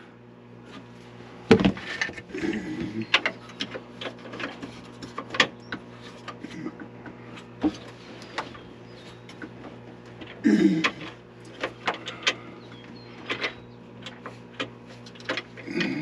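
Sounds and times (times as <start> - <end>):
steady low hum: 0.0 - 16.0
hand tools clicking and clattering: 9.2 - 16.0.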